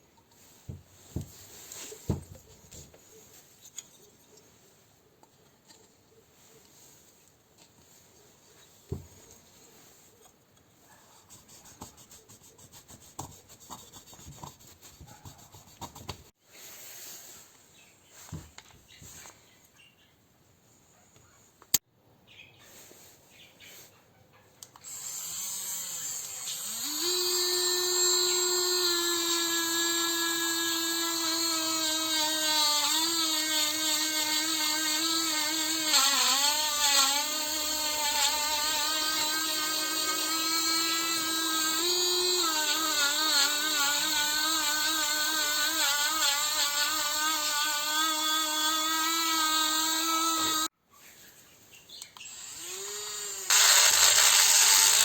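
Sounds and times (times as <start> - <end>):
power drill whining: 24.8 - 50.7, 52.2 - 55.0.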